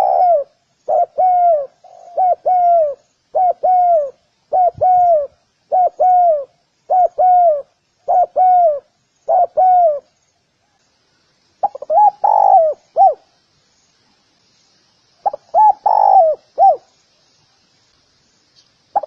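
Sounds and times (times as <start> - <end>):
dove cooing: 0.0 - 10.1, 11.6 - 13.3, 15.2 - 16.9.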